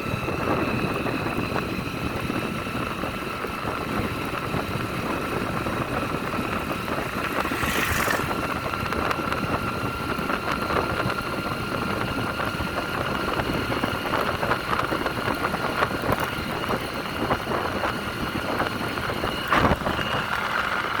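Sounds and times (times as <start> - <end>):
motorcycle engine rumbling: 3.8 - 9.5
brief hiss: 7.2 - 8.5.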